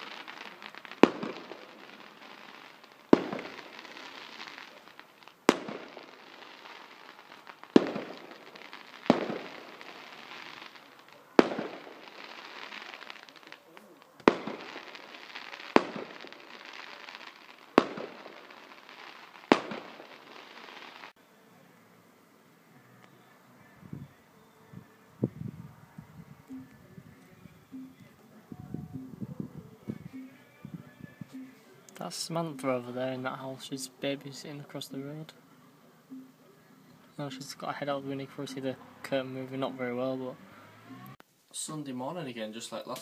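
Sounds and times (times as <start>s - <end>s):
fireworks bangs with crackling echo: 0.0s - 21.2s.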